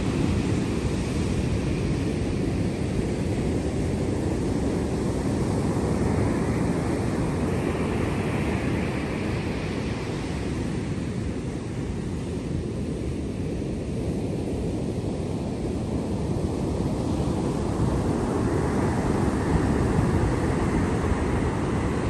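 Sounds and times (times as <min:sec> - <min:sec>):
sea waves surf rushing: 0:15.4 - 0:22.0.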